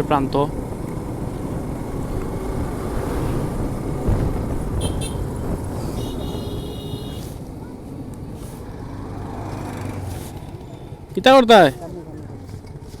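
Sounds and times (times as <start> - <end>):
motorcycle engine and road noise: 0.0 - 13.0
wind rushing over microphone: 0.5 - 7.6.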